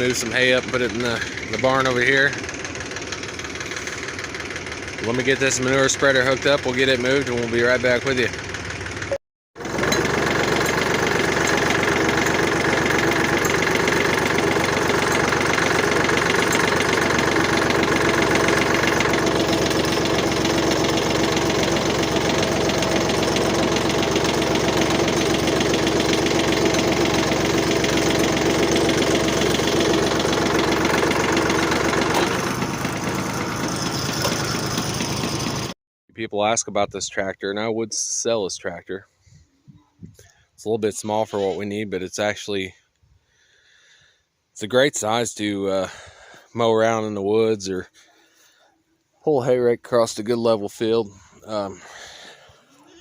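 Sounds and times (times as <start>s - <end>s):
diesel tractor engine running: 0.0s - 35.8s.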